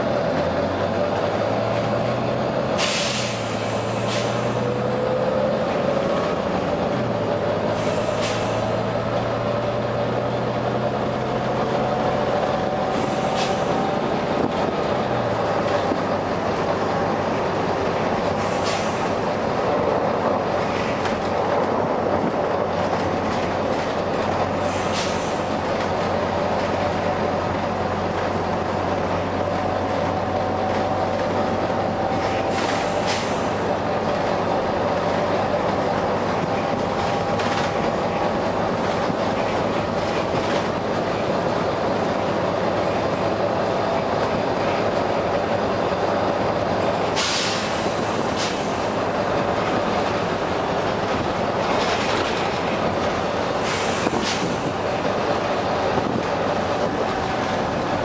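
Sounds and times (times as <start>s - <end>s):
bus engine running: 0.0s - 58.0s
compressed air hissing: 2.8s - 4.6s, 7.8s - 8.8s, 12.9s - 13.8s, 18.4s - 19.2s, 24.6s - 25.5s, 32.5s - 33.7s, 47.2s - 48.8s, 53.6s - 54.7s.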